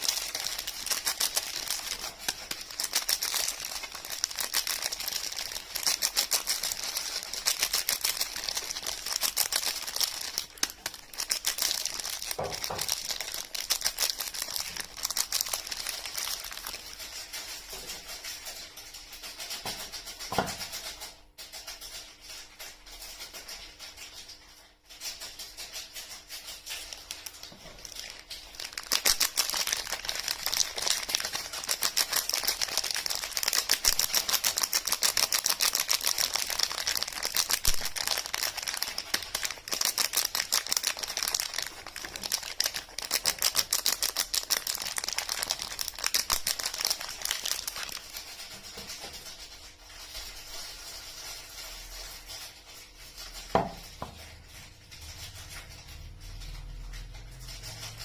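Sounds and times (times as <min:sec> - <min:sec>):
packaging crackling and clicking: 0:00.0 - 0:58.0.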